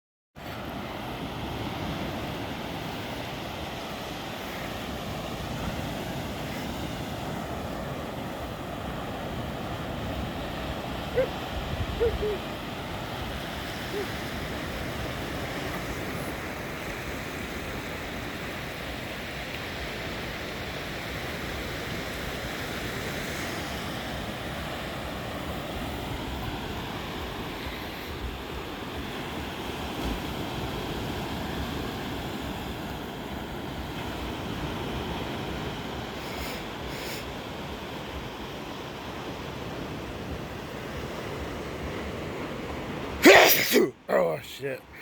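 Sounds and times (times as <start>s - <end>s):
ocean waves washing in: 0.4s - 45.0s
wind on microphone: 10.0s - 15.0s.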